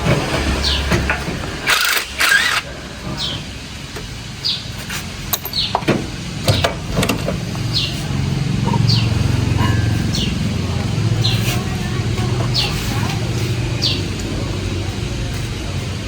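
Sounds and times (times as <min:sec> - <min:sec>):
engine running: 0:00.0 - 0:16.0
bird chirping: 0:07.6 - 0:10.5.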